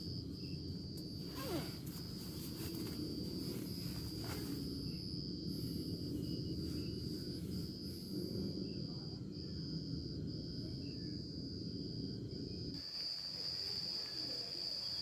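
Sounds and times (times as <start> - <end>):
insect trilling: 0.0 - 10.0.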